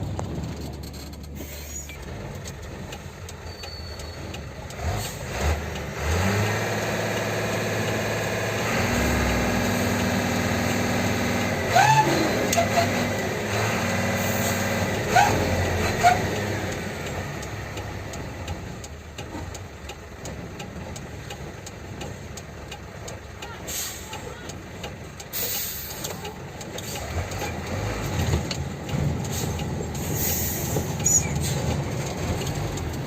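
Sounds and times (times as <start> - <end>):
truck engine running under load: 0.0 - 33.0
sharp sliding squeals: 0.6 - 2.0, 3.4 - 4.4, 30.2 - 31.6.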